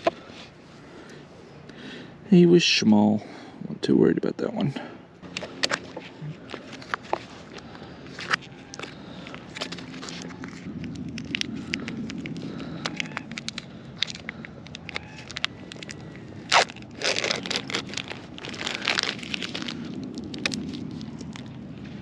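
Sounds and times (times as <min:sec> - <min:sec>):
rustling and scraping: 0:05.3 - 0:22.0.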